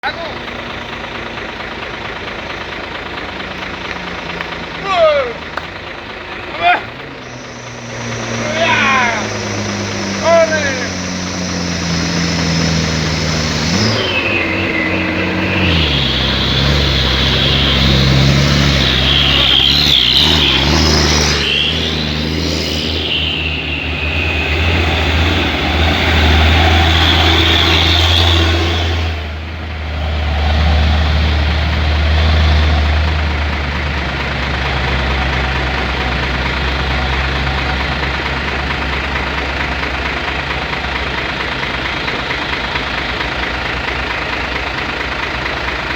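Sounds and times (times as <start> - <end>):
truck diesel engine under load: 0.0 - 45.9
high whine: 7.2 - 32.1.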